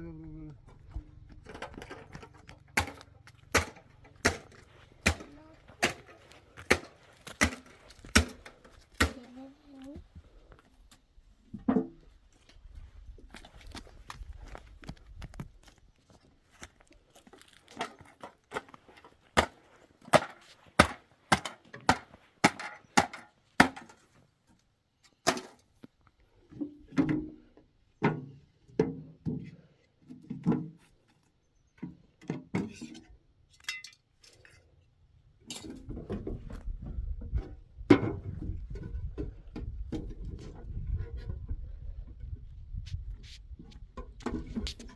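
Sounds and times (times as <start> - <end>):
wood being chopped: 2.8 - 9.3, 19.4 - 24.0, 25.2 - 25.6.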